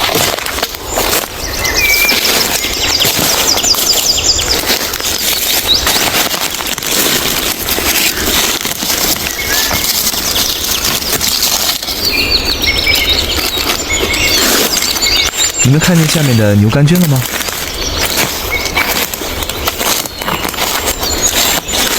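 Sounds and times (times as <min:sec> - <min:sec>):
rustling of leaf litter: 0:00.0 - 0:21.9
small birds chirping: 0:00.0 - 0:21.9.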